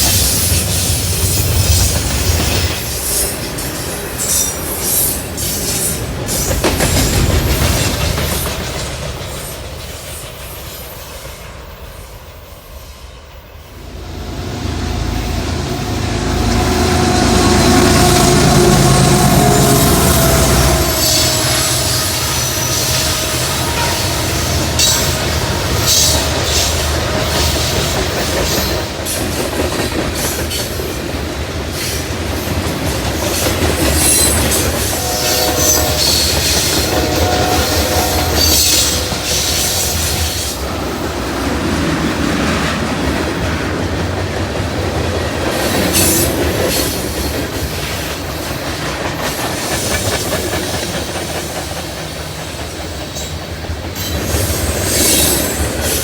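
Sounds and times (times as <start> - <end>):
train wheels clicking over rails: 0.0 - 12.3, 13.8 - 56.0
high wheel squeals: 13.7 - 26.8, 34.0 - 40.6, 54.0 - 56.0.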